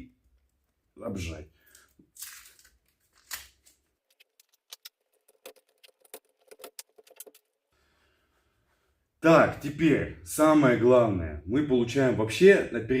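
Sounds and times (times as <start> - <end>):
wire ends clicking and tapping: 1.7 - 7.5.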